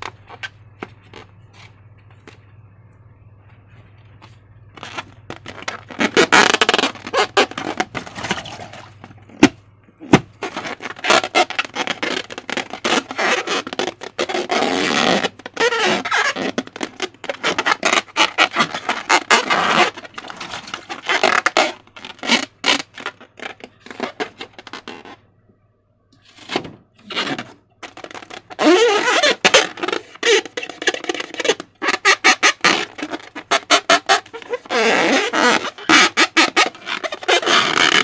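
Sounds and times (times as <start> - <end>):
faint low hum: 0.0 - 21.0, 23.0 - 29.0
slime crackling and scraping: 4.8 - 25.2, 26.2 - 38.0.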